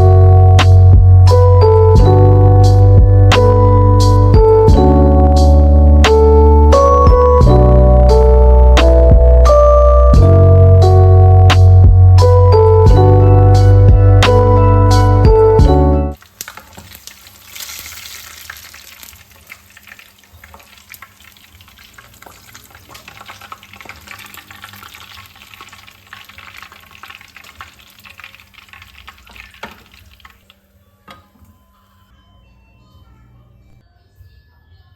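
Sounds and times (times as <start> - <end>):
food sizzling in hot oil: 16.2 - 30.5.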